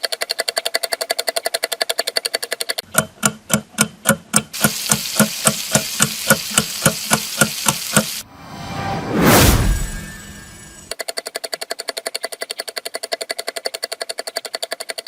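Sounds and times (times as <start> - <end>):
rhythmic sharp knocks: 3.0 - 8.2
hiss: 4.6 - 8.2.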